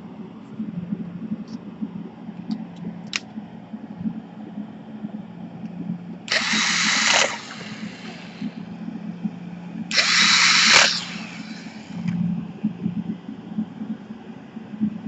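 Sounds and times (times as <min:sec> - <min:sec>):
low steady hum: 0:00.0 - 0:15.0
power tool hissing whir: 0:06.3 - 0:08.6, 0:09.9 - 0:12.2.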